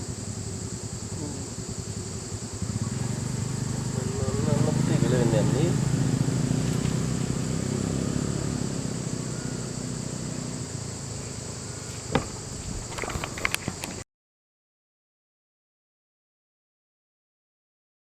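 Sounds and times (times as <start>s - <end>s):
insects droning: 0.0s - 14.0s
vehicle engine rumbling: 0.0s - 14.0s.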